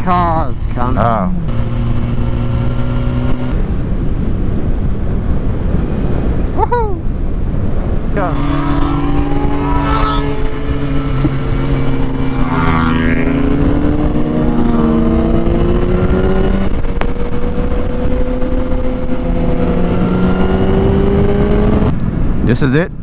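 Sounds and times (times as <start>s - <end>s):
motorcycle engine revving: 0.0s - 4.0s, 7.8s - 21.9s
wind noise: 0.0s - 23.0s.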